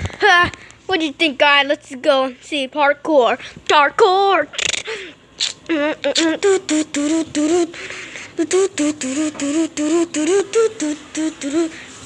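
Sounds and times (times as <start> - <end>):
person beatboxing: 4.5 - 11.8.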